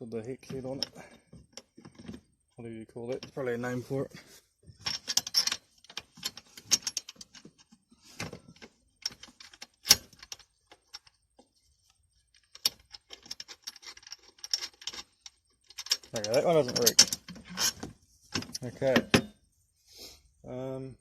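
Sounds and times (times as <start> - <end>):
small metal parts clinking: 4.8 - 19.4.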